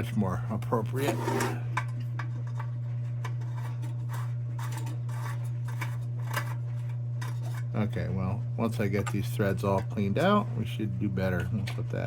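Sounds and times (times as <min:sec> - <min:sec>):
tin parts scraping and clicking: 0:01.0 - 0:07.7.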